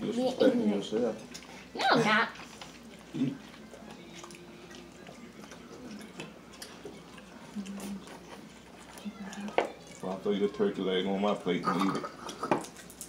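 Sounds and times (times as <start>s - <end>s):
people chewing food: 0.0s - 13.0s
low hum of a voice: 2.9s - 12.1s.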